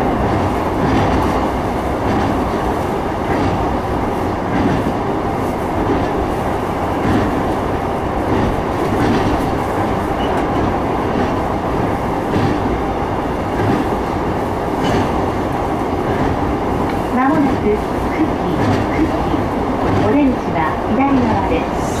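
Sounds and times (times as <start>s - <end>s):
train wheels rumbling on rail: 0.0s - 22.0s
wheels clicking over rail joints: 8.3s - 12.8s.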